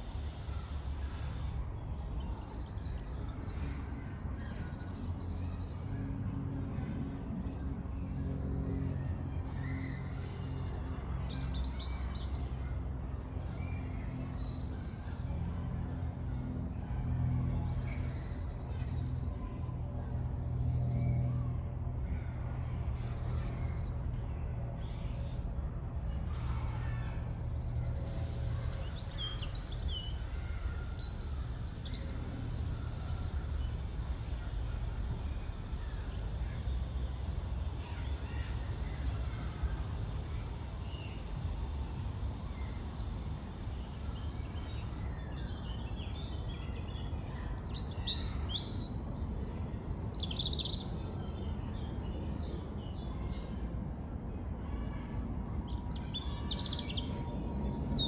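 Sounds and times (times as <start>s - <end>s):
road traffic rumble: 0.0s - 58.0s.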